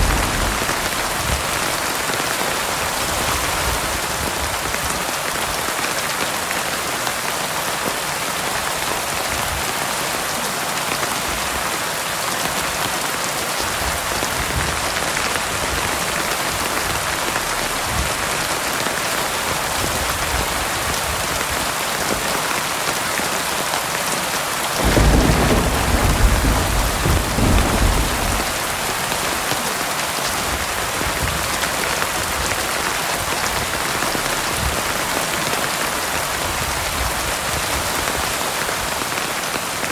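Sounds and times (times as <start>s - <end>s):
low rumble of thunder: 0.0s - 2.0s, 24.8s - 29.5s
heavy rain falling: 0.0s - 39.9s.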